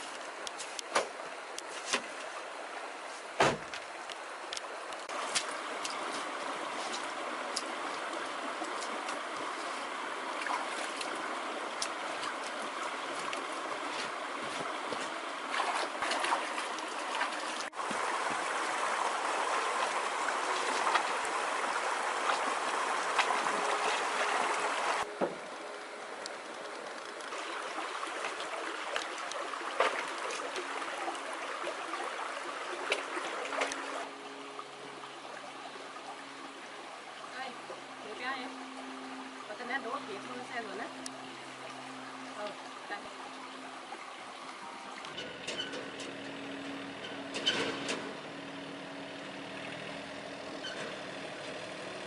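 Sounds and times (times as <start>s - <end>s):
heavy thump: 3.4s - 3.7s
water running and splashing: 4.9s - 25.1s, 26.5s - 45.2s.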